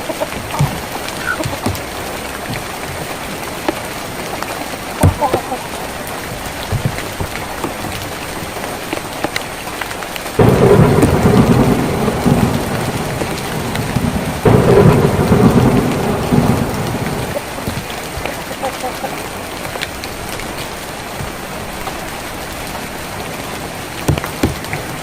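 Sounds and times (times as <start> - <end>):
rain on a tin roof: 0.0 - 25.0
deep rumble: 10.4 - 17.4.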